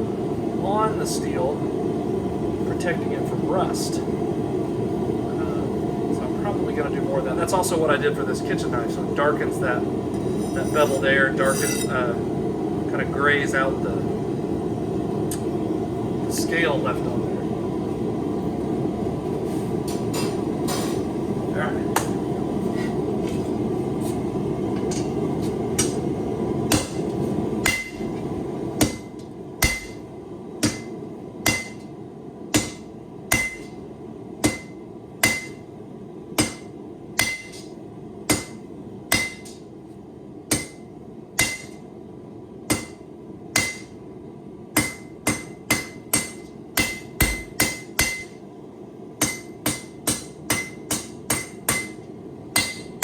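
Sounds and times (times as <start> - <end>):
hammer striking blade on anvil: 10.2 - 12.0, 26.7 - 27.0, 27.6 - 28.0, 28.8 - 30.0, 30.6 - 30.9, 31.5 - 31.9, 32.6 - 33.8, 34.4 - 35.6, 36.4 - 37.7, 38.3 - 39.6, 40.5 - 40.8, 41.4 - 41.8, 42.7 - 43.0, 43.6 - 44.0, 44.8 - 48.4, 49.2 - 52.0, 52.6 - 53.0.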